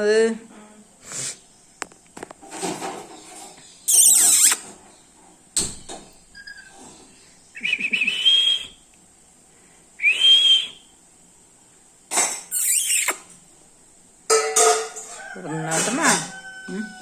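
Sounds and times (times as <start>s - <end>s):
parrot whistling rising notes: 3.9s - 4.6s, 12.5s - 13.2s
parrot screech: 3.9s - 4.8s, 12.5s - 13.3s.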